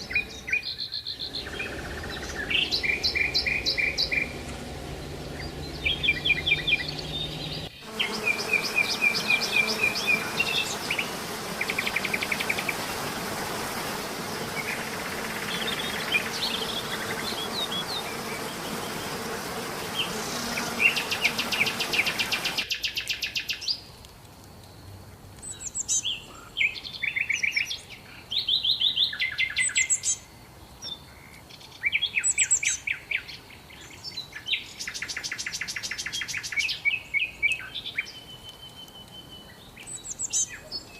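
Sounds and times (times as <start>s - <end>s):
small songbirds singing: 0.0s - 24.0s, 24.7s - 40.9s
steady hiss: 1.2s - 22.7s.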